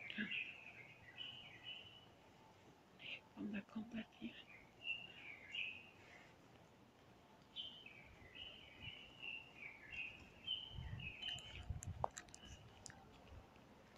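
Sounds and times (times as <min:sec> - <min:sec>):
faint bird chirping and warbling: 0:00.0 - 0:02.2, 0:03.9 - 0:06.2, 0:07.5 - 0:12.7.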